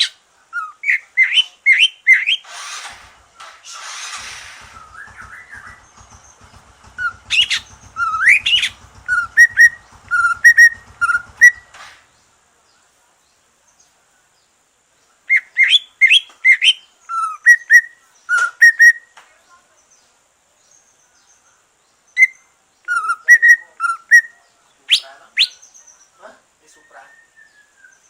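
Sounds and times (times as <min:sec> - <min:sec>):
bird singing whistled chirping notes: 0:00.0 - 0:02.5, 0:04.6 - 0:11.7, 0:15.3 - 0:19.2, 0:20.6 - 0:28.0.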